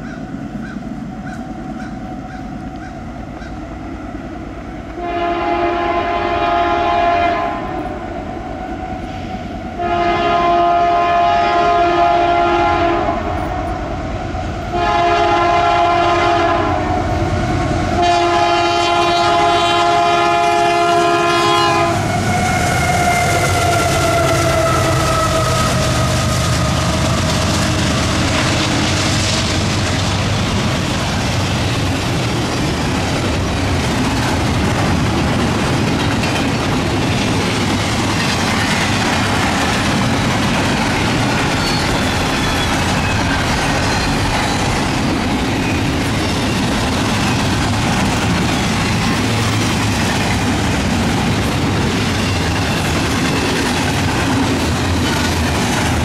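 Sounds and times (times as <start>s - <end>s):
freight train passing: 0.0s - 56.0s
locomotive horn: 4.9s - 14.0s, 14.6s - 29.2s.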